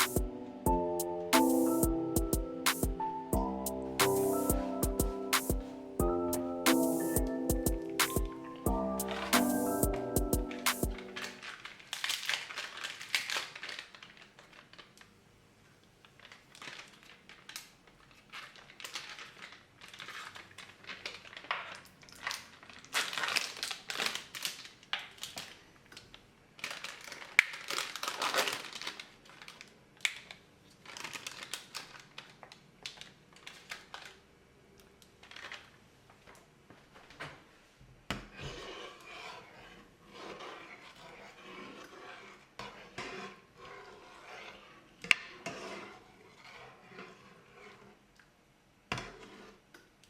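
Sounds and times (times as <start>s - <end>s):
crinkling rustles: 11.0s - 34.3s, 35.0s - 37.5s.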